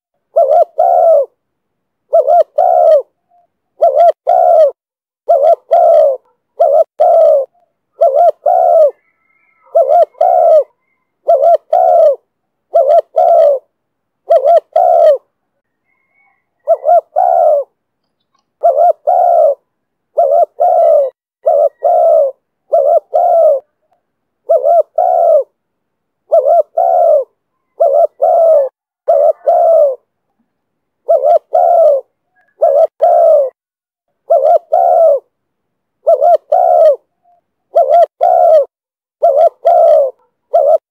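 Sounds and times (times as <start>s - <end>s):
dove cooing: 0.2s - 1.4s, 2.1s - 25.6s, 26.3s - 30.1s, 31.0s - 33.6s, 34.2s - 35.3s, 36.0s - 40.9s.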